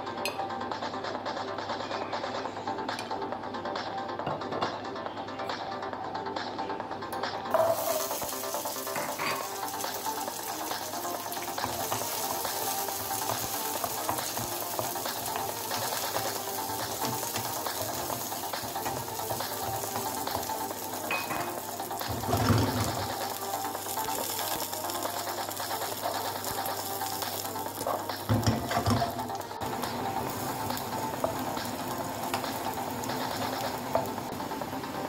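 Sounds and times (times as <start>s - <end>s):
garlic sizzling in pan: 7.5s - 35.0s.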